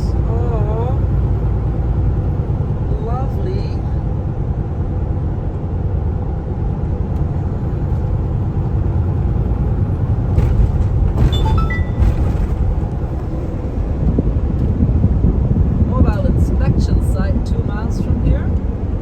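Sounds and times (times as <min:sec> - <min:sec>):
truck engine and road noise: 0:00.0 - 0:19.0
short high-pitched tones: 0:11.3 - 0:12.1.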